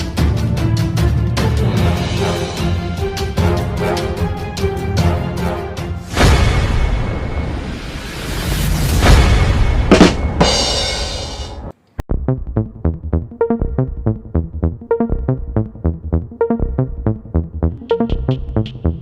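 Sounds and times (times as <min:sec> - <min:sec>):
electronic music with steady beat: 0:12.1 - 0:19.0.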